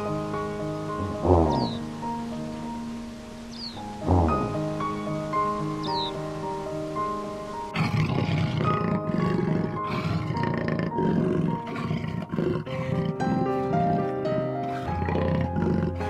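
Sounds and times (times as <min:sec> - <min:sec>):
background music: 0:00.0 - 0:16.0
animal's low harsh calls: 0:01.0 - 0:01.8, 0:07.7 - 0:16.0.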